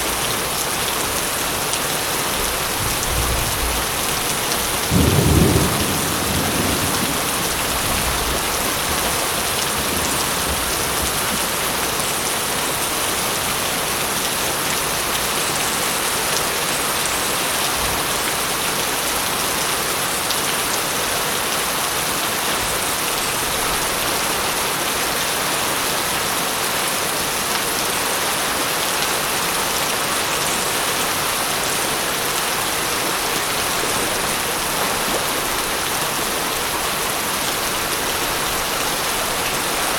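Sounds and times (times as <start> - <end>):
heavy rain: 0.0 - 39.9
low thunder rumble: 2.7 - 11.2.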